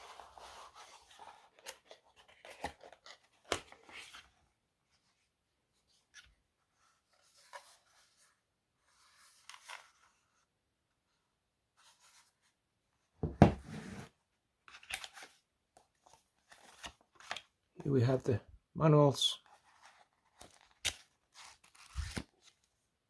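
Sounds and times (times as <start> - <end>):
cardboard and wrapping rustling: 0.0 - 4.3, 19.4 - 22.8
package thump: 13.2 - 13.6.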